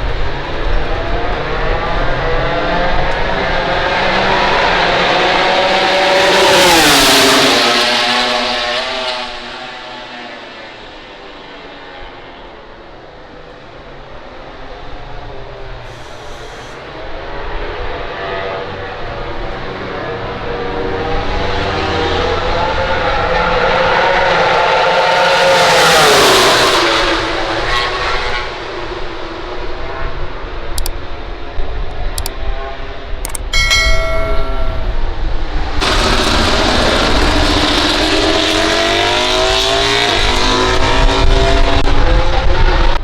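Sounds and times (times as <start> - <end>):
racing motorcycles at high revs: 0.1 - 11.1, 35.8 - 43.0.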